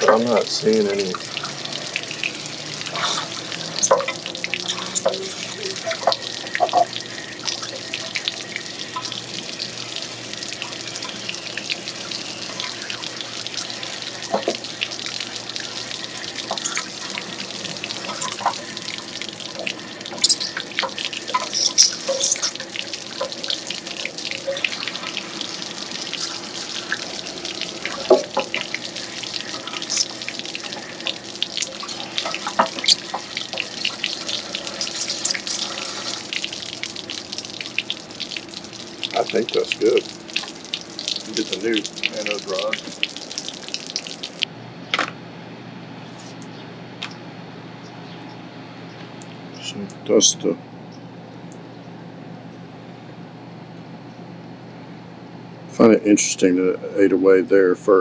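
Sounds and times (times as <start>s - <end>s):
water rushing and splashing from tank: 0.0s - 44.5s.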